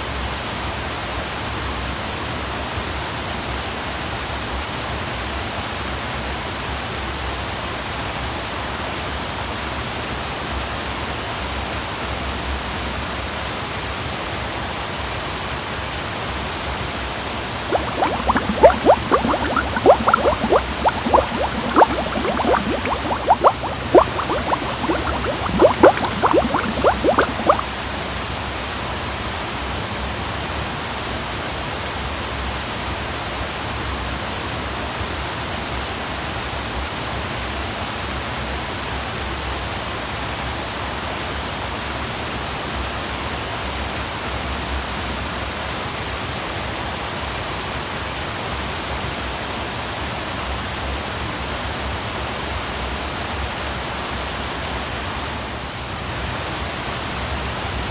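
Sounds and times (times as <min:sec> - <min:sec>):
quick gurgling pops: 0:17.7 - 0:27.7.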